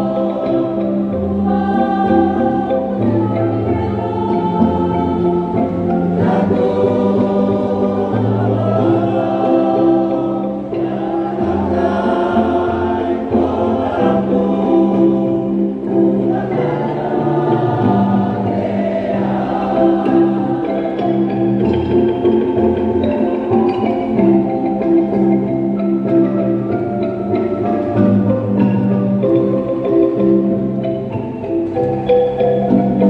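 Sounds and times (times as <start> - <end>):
mixed choir singing: 0.0 - 24.4.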